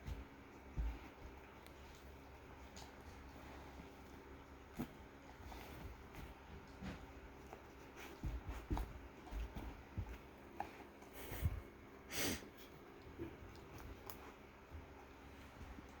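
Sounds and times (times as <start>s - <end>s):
snorting breath: 10.4s - 12.9s.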